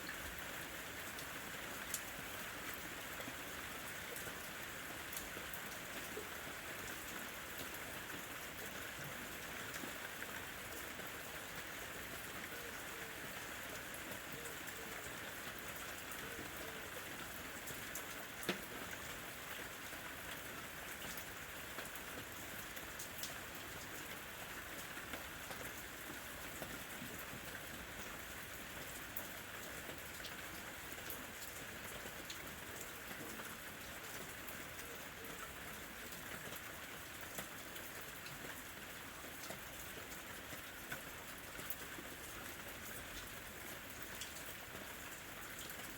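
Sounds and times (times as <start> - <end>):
steady rain falling: 0.0 - 45.9
rain drop ticks: 17.9 - 19.1, 21.0 - 23.4, 44.2 - 44.4.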